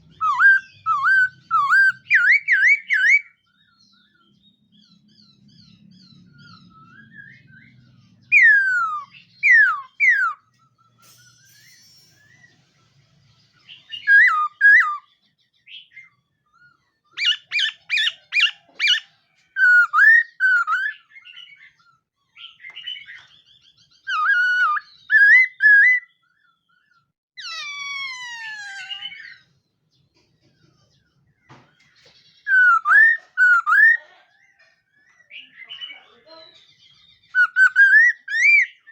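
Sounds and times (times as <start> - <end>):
bird singing whistled phrases: 0.1 - 3.4, 6.5 - 10.5, 13.7 - 15.1, 19.6 - 21.8, 24.0 - 26.2, 32.4 - 34.0, 37.1 - 38.9.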